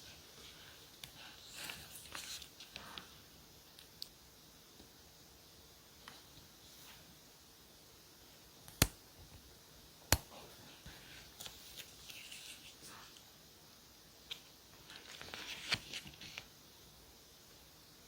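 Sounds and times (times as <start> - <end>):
paper rustling: 14.8 - 16.5.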